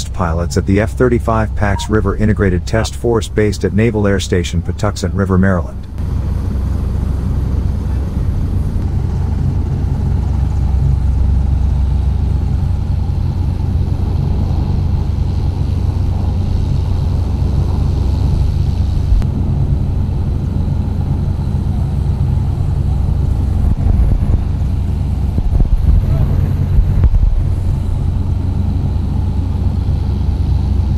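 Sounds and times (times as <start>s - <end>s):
jet engine roar: 0.0s - 30.9s
wind buffeting microphone: 5.8s - 29.4s.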